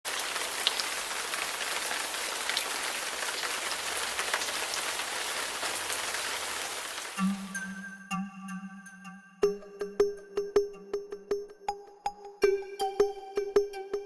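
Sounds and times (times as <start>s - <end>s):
raindrop ticks: 0.1s - 7.4s
steady rain hiss: 0.1s - 7.5s.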